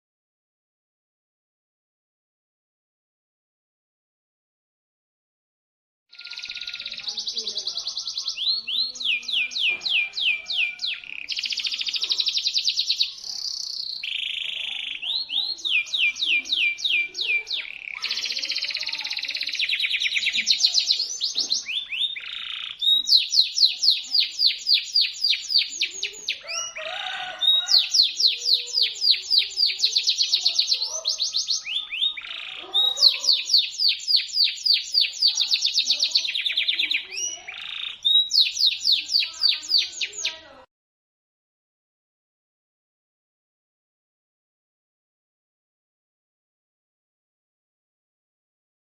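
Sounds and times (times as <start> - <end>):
canary singing trills: 6.1 - 40.7.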